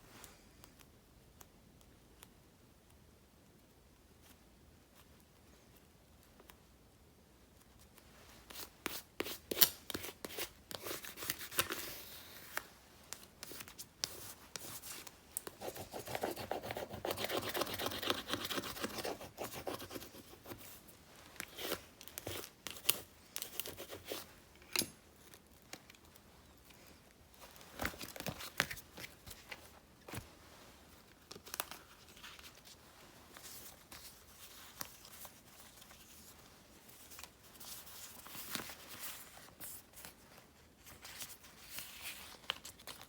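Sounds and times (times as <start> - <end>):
scratchy rubbing or cutting: 15.6 - 20.6.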